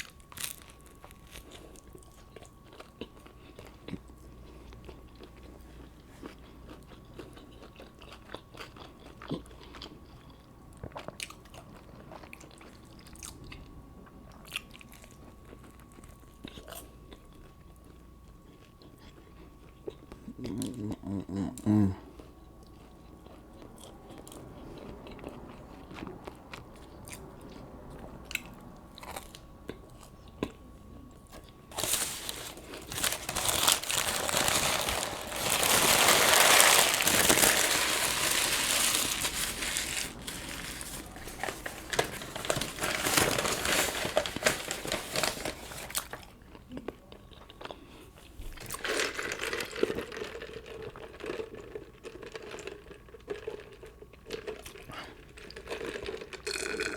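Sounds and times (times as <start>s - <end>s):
crinkling and crunching: 0.0s - 13.5s, 28.3s - 47.8s, 48.4s - 56.9s.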